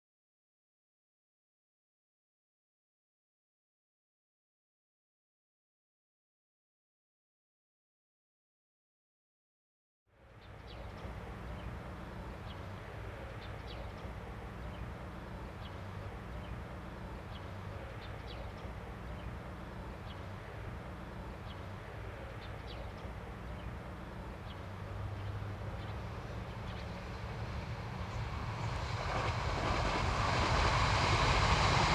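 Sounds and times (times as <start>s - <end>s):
small birds chirping: 10.2s - 30.0s
low outdoor rumble: 10.2s - 31.9s.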